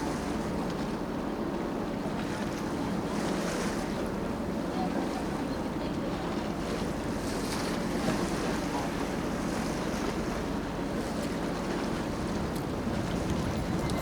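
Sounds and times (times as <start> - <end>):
boat engine running: 0.0 - 14.0
water rushing along hull: 0.0 - 14.0
wind on microphone: 11.7 - 14.0.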